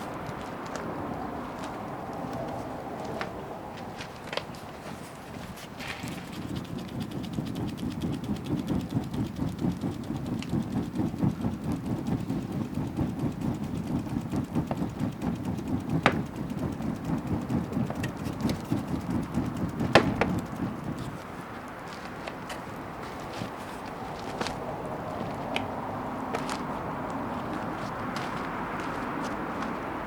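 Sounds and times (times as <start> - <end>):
bonfire rumbling: 0.0 - 30.0
fire crackling pops: 0.0 - 30.0.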